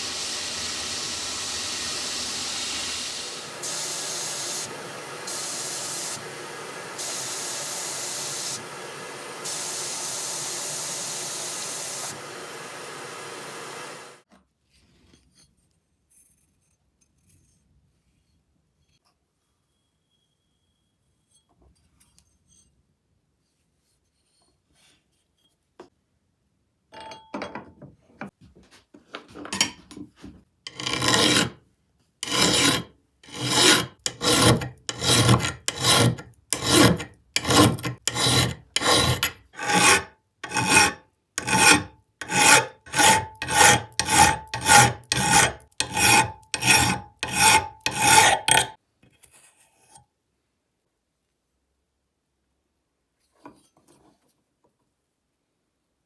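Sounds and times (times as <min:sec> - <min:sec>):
file rasping back and forth: 0:00.0 - 0:14.2, 0:30.7 - 0:31.6, 0:32.2 - 0:48.8.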